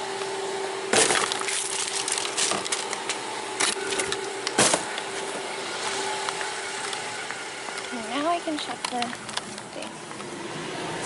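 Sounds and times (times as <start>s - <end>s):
plastic cups and wrappers crinkling: 1.0s - 4.3s, 7.7s - 10.2s.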